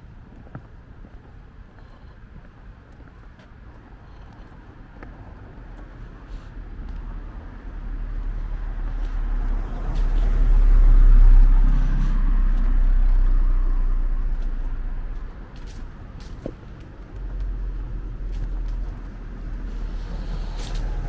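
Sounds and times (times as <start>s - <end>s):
car passing by: 7.0s - 15.9s, 17.6s - 21.0s.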